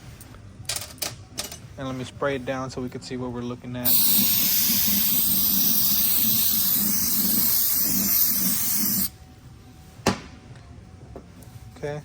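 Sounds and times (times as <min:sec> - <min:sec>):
aerosol spraying hiss: 0:03.9 - 0:09.1.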